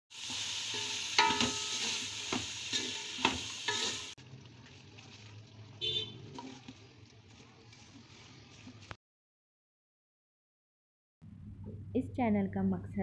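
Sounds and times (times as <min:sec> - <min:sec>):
beetroot sizzling in a pot: 0:00.1 - 0:09.0
spoon stirring and knocking on pot: 0:00.7 - 0:04.0.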